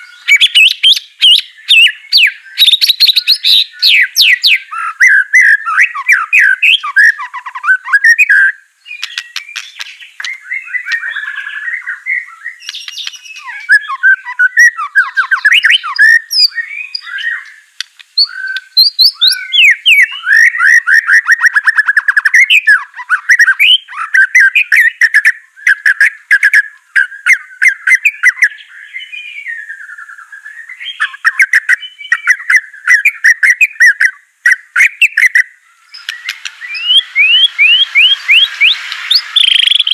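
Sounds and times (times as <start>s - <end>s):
bird singing: 0.0s - 39.9s
sharp bird clicks: 8.9s - 11.7s, 12.5s - 14.0s, 15.1s - 20.7s, 34.5s - 39.9s.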